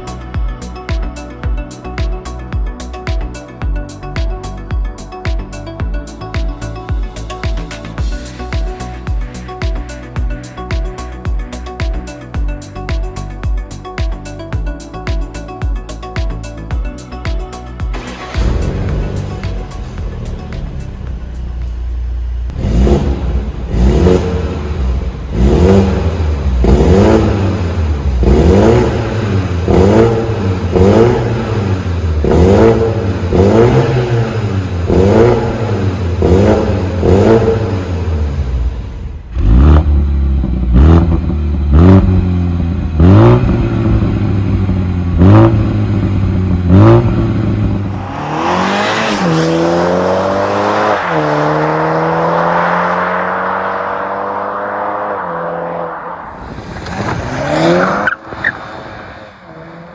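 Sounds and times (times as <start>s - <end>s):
exhaust cracks: 17.9s - 59.5s
car engine revving: 17.9s - 59.9s.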